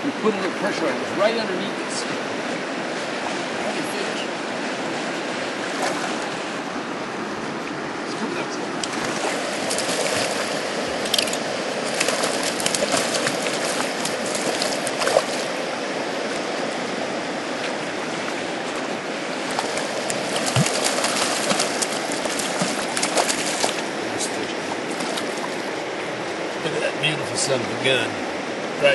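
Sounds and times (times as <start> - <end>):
river flowing: 0.0 - 28.9
sharp water splashes: 5.6 - 6.4, 8.8 - 16.7, 17.4 - 24.1, 24.8 - 25.7.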